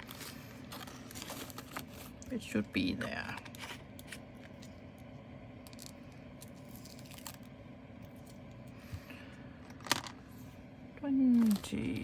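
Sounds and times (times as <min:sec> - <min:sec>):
plastic bags rustling: 0:00.0 - 0:04.7
steady low hum: 0:00.0 - 0:12.0.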